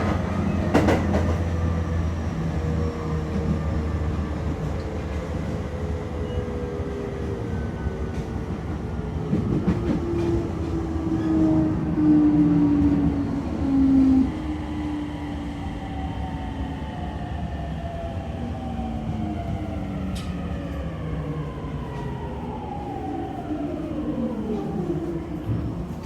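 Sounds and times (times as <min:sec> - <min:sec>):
train running gear rumble: 0:00.0 - 0:15.1.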